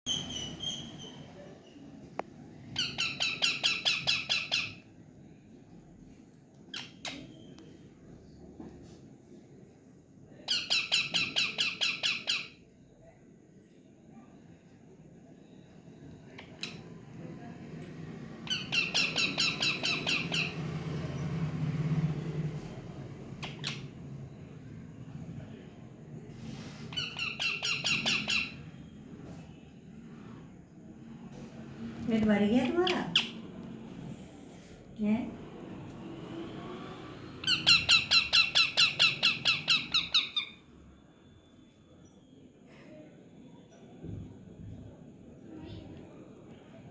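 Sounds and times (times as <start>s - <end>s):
parrot squawking: 18.5s - 20.6s, 27.0s - 28.6s, 32.8s - 33.4s, 37.4s - 40.6s.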